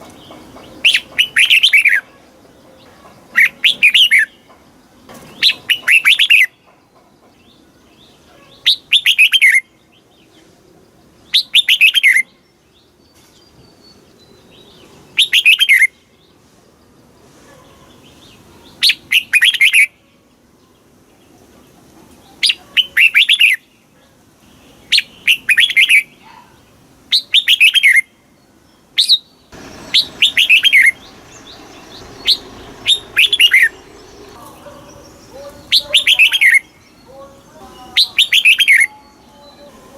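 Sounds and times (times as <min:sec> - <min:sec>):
bird singing falling notes: 0:29.0 - 0:39.8.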